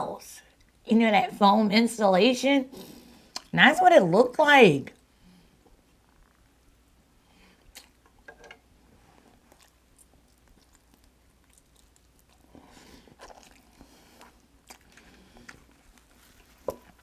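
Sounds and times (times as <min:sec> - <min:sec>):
person chewing: 0:07.6 - 0:08.0, 0:09.2 - 0:17.0.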